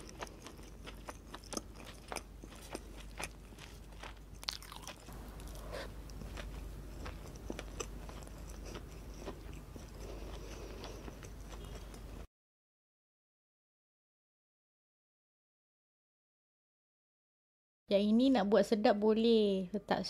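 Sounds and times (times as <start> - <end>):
person chewing food: 0.0 - 12.3.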